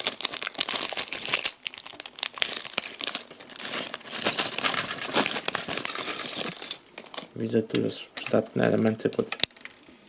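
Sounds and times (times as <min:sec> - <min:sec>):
plastic bags crinkling: 0:00.0 - 0:07.4.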